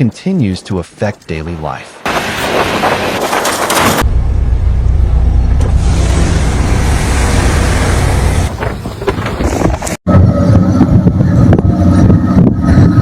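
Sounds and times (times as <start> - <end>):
vehicle engine rumble: 3.2 - 13.0.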